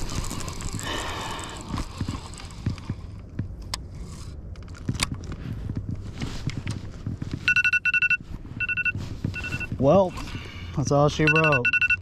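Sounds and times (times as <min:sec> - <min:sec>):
electronic alarm beeping: 0:07.5 - 0:09.9, 0:11.1 - 0:12.0.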